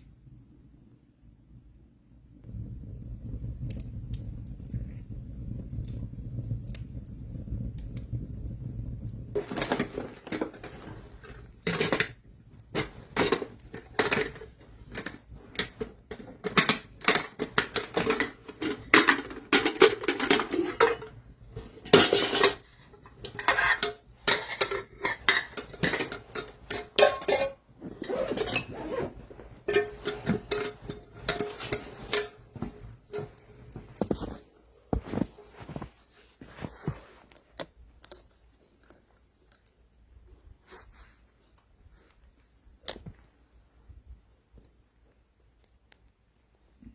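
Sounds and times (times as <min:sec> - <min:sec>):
low steady rumble: 0:00.1 - 0:16.3
metal pots and dishes clinking: 0:09.4 - 0:12.2, 0:12.8 - 0:33.4.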